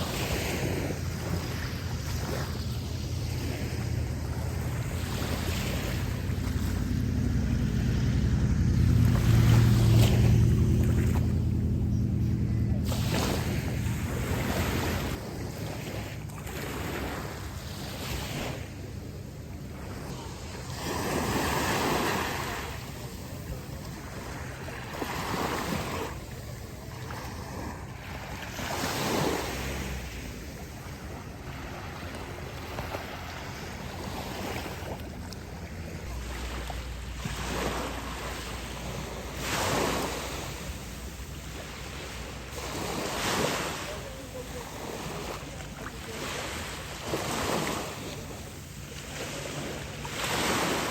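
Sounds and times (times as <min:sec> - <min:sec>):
wind buffeting microphone: 0:00.0 - 0:16.0
sea waves washing in and out: 0:00.0 - 0:50.9.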